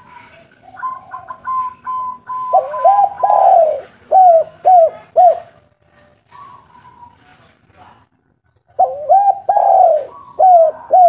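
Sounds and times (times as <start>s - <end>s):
dove cooing: 0.0s - 5.6s, 6.3s - 7.2s, 8.7s - 11.0s.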